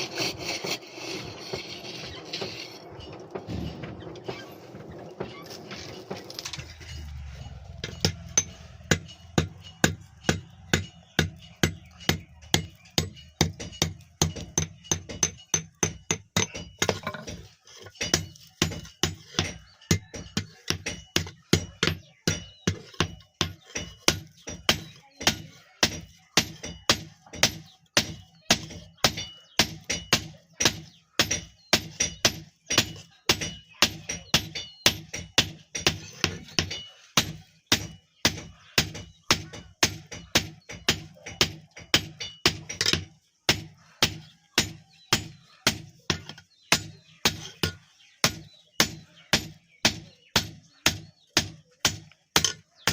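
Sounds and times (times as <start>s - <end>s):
hammer striking blade on anvil: 6.9s - 17.4s.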